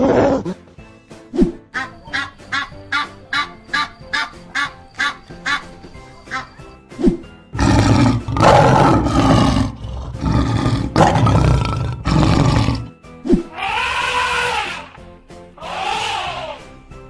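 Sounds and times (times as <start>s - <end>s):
background music: 0.0s - 17.0s
lion roaring: 7.6s - 12.9s.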